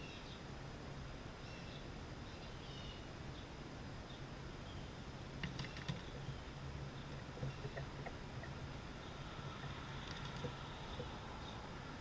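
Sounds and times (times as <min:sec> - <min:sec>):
bird chirps: 0:00.0 - 0:11.7
low outdoor hum: 0:00.0 - 0:12.0
bird wings flapping at feeder: 0:05.4 - 0:06.4, 0:09.6 - 0:11.1.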